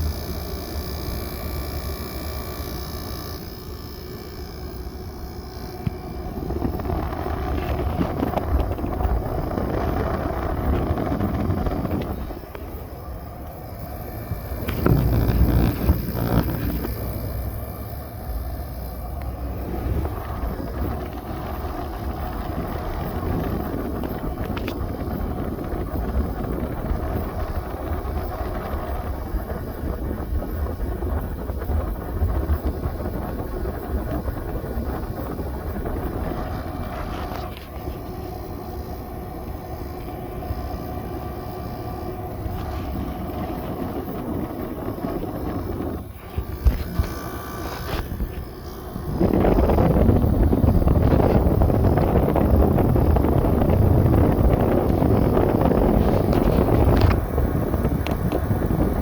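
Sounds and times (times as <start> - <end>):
air conditioner fan humming: 0.0 - 28.6.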